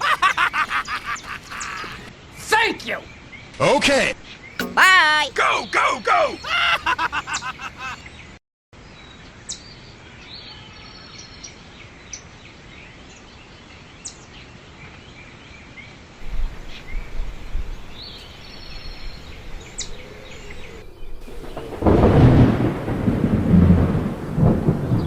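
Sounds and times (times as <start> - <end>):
birds chirping: 0.0 - 9.7, 16.2 - 21.9.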